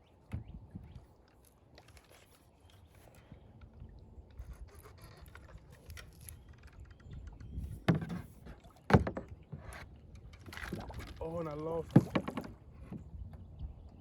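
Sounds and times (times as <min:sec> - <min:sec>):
fishing tackle clicks and scrapes: 0:01.0 - 0:08.7.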